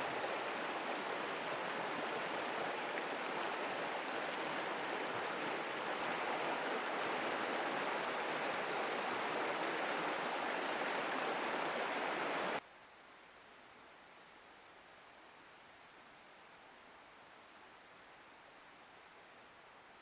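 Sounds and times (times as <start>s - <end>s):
river water rushing: 0.0s - 12.6s
faint hiss: 0.0s - 20.0s.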